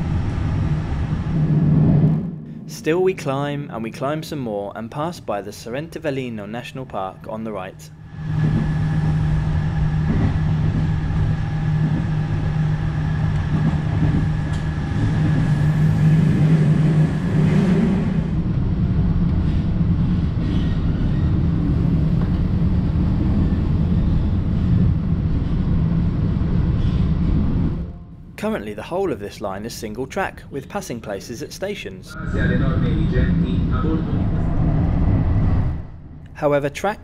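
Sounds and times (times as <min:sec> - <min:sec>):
high whine: 0:00.0 - 0:28.6, 0:32.1 - 0:36.6
train wheels on rail: 0:08.1 - 0:27.8.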